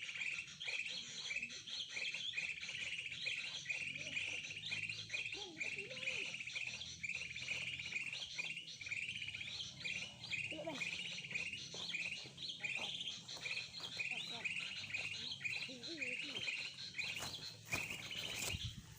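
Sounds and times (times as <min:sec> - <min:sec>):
faint bird calls: 0:00.0 - 0:18.9
songbird trilled chirps: 0:00.0 - 0:18.9.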